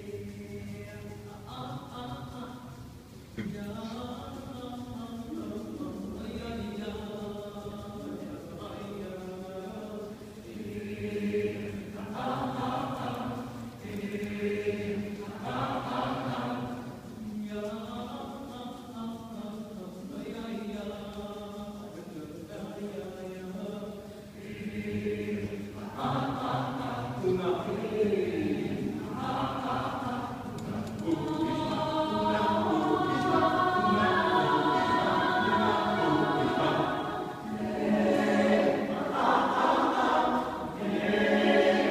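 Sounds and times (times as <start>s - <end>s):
a cappella choir singing: 0.0s - 41.9s.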